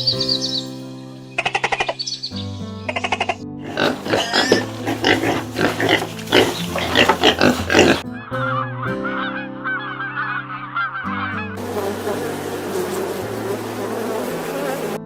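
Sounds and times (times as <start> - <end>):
background music: 0.0 - 15.0
goose honking: 3.7 - 13.9.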